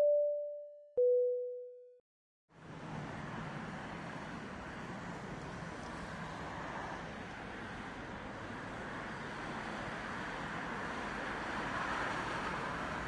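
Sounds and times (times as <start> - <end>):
two-note descending chime: 0.0 - 1.9.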